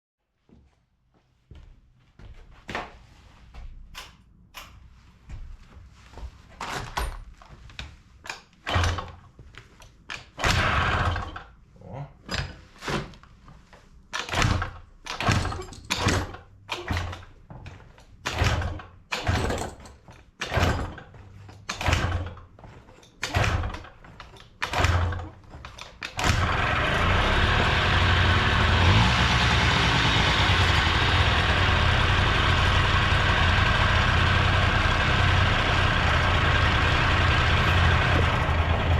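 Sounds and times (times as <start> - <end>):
scooter engine cranking: 26.2 - 38.9
two-stroke engine running: 26.3 - 38.9.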